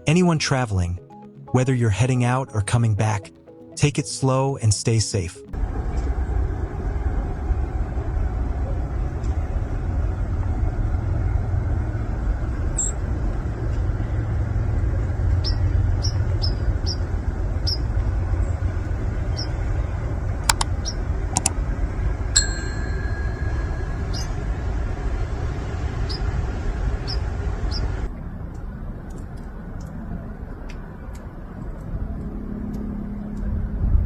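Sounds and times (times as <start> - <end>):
vehicle driving rumble: 5.5 - 34.0
short ringing ding: 22.4 - 24.6.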